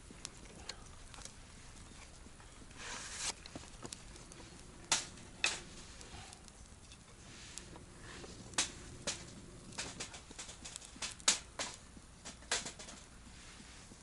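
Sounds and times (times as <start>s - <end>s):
faint steady hiss: 0.0s - 14.0s
rustling: 0.0s - 14.0s
sharp clicks and knocks: 8.5s - 13.1s.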